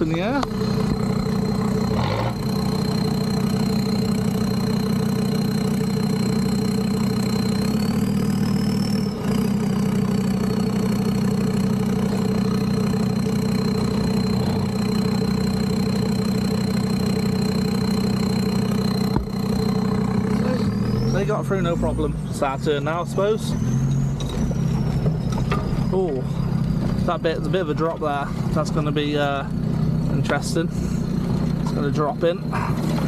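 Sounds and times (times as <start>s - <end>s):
thin high whine: 0.0s - 9.3s, 10.5s - 23.3s
diesel engine idling: 0.0s - 33.0s.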